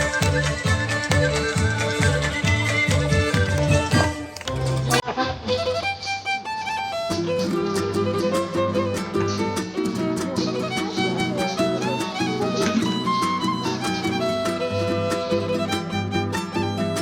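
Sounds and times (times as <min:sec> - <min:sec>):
bass: 0:00.0 - 0:05.0
fiddle playing quick melody: 0:00.0 - 0:17.0
plucked rhythmic accompaniment: 0:00.0 - 0:17.0.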